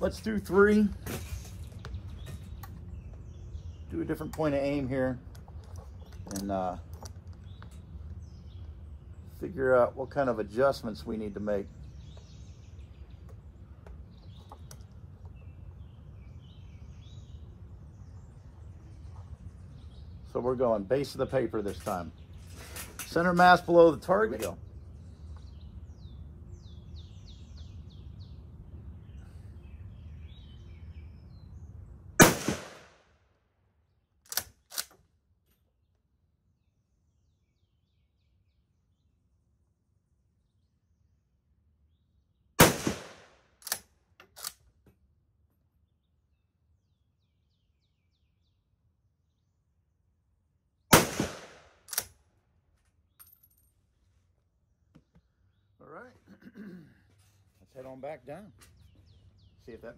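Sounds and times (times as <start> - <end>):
rifle shots: 32.2 - 33.0, 42.6 - 43.8, 50.9 - 52.1
rifle bolt clicking: 34.3 - 35.0.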